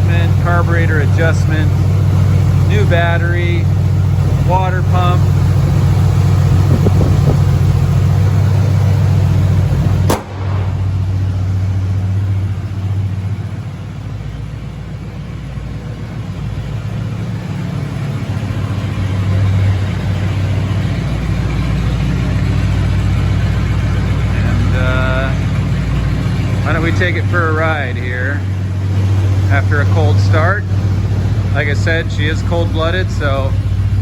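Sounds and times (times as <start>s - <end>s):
van engine idling: 0.0s - 34.0s
sharp click: 10.1s - 10.8s.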